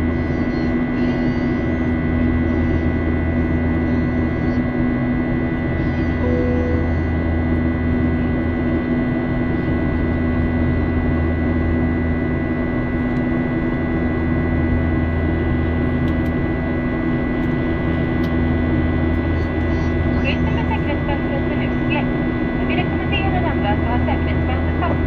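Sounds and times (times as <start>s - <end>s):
brief tone: 0.0s - 4.8s, 5.7s - 7.2s
airliner cabin drone: 0.0s - 25.0s.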